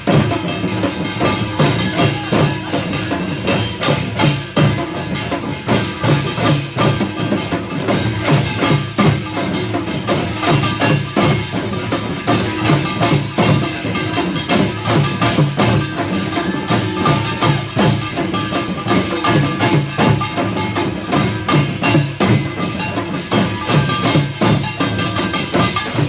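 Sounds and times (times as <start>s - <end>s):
percussion ensemble drums and gongs: 0.0s - 26.0s.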